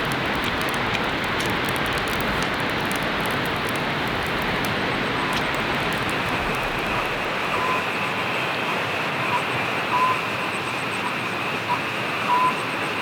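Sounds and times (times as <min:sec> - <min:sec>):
heavy rain falling: 0:00.0 - 0:07.7.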